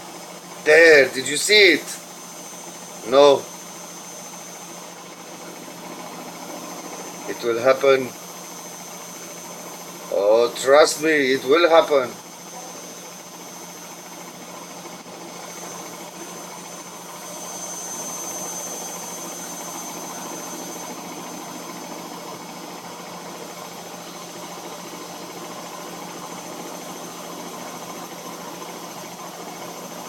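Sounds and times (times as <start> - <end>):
washing machine running: 0.0 - 30.0.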